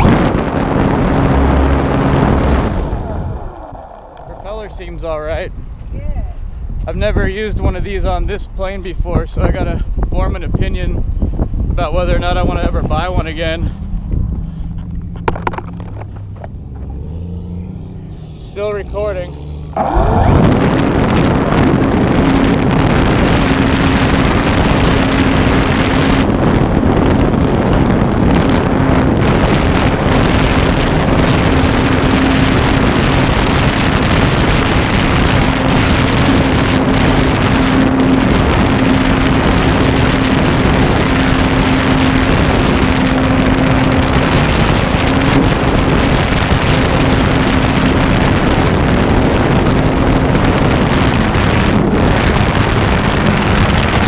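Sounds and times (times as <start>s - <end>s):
wind rushing over camera: 0.0s - 54.0s.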